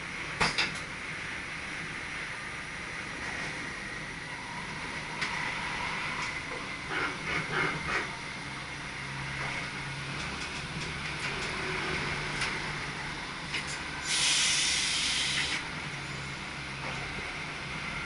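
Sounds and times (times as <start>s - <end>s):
compressed air hiss: 14.0s - 15.6s.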